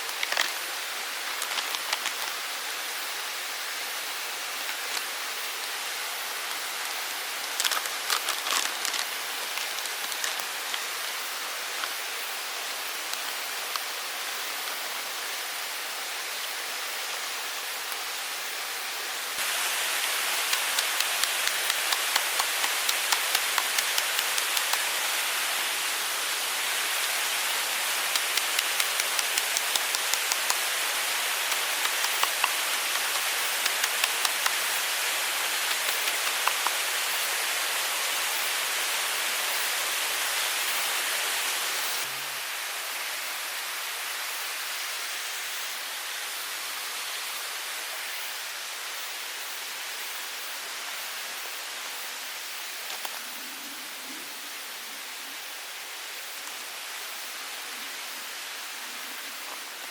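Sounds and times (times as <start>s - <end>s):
forest stream rushing: 0.0s - 59.9s
sharp clicks: 20.4s - 24.8s, 28.1s - 30.6s, 31.5s - 34.6s, 35.6s - 36.8s.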